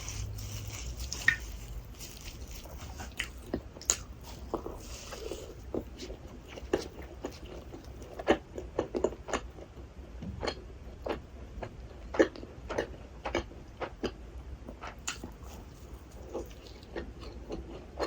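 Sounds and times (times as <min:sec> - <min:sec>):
wet chewing mouth clicks: 0:00.2 - 0:05.9.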